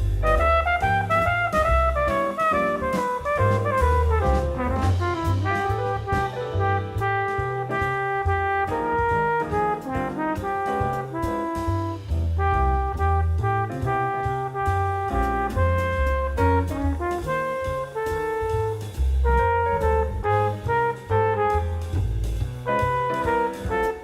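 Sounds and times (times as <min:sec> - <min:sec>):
brass horns playing melody: 0:00.0 - 0:22.1, 0:22.7 - 0:24.0
bass line: 0:00.0 - 0:24.0
drums: 0:00.0 - 0:24.0.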